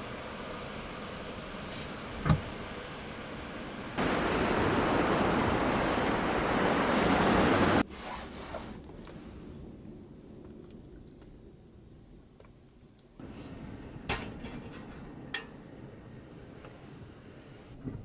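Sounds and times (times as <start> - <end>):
sea waves surging on shore: 0.0 - 7.9.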